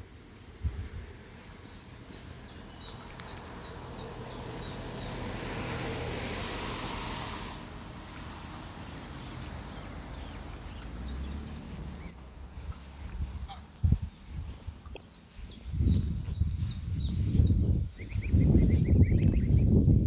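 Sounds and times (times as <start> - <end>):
low wind rumble: 0.0 - 20.0
bird peeps: 17.4 - 19.6.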